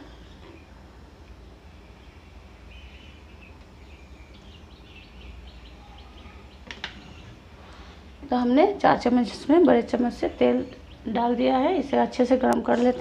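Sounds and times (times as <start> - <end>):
steady low hum: 0.0 - 13.0
faint bird chirps: 1.7 - 7.4.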